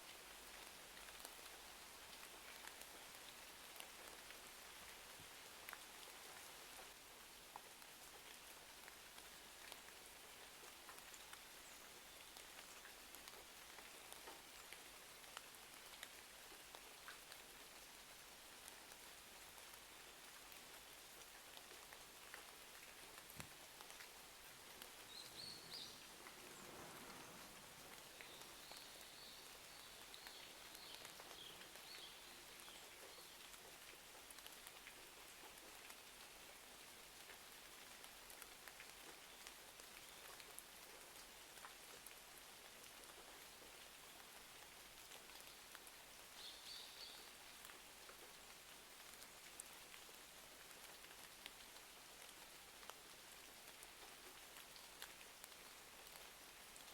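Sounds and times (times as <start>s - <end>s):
faint rain: 0.0s - 56.9s
raindrops ticking: 5.6s - 56.9s
fireplace crackling: 25.9s - 28.6s.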